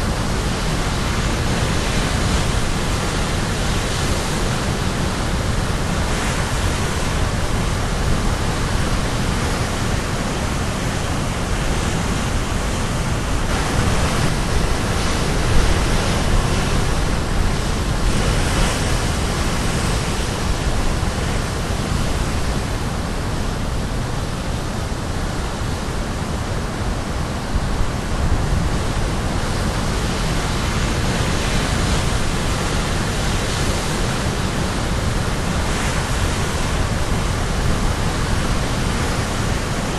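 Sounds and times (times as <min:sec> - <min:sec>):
wind rumble on microphone: 0:00.0 - 0:39.9
waves breaking on rocks: 0:11.0 - 0:22.4.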